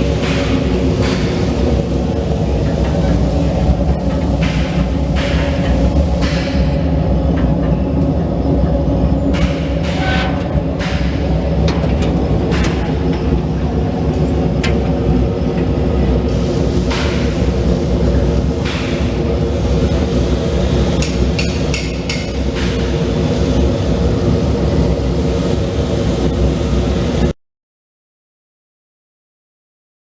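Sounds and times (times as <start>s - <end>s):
parts washer humming: 0.0s - 27.3s.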